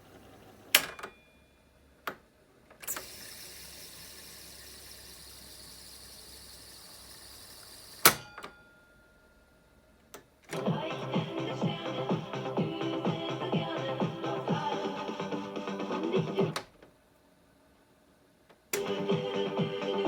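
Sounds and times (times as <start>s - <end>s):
tape transport whirring: 10.4s - 16.9s, 18.7s - 20.0s
music playback: 10.6s - 16.7s, 18.8s - 20.0s.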